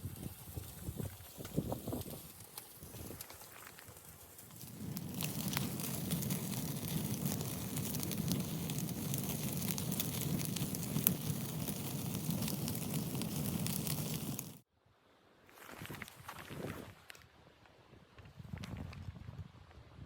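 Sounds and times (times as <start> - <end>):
wood fire crackling: 0.0 - 14.7.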